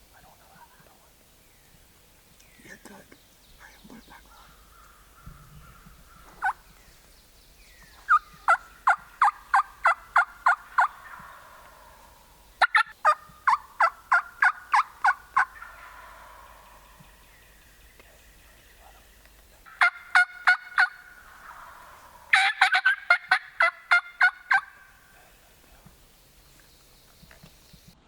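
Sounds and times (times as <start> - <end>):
wild turkey yelping: 4.2 - 6.9, 8.0 - 26.0.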